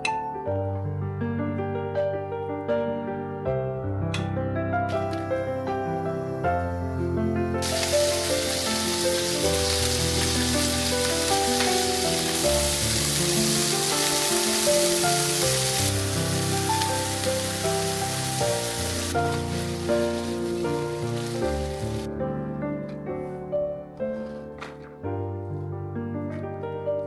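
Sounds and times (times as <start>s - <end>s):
background music: 0.0s - 27.0s
food sizzling in a pan: 4.9s - 22.1s.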